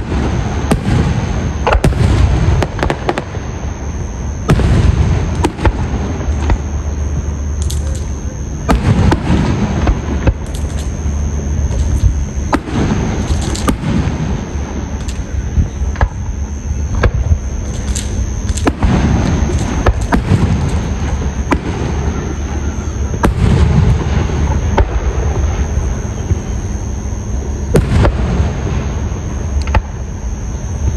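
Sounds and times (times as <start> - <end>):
firework shells bursting: 0.0 - 3.7, 4.4 - 16.3, 16.9 - 25.5
steady high-pitched tone: 0.0 - 30.9.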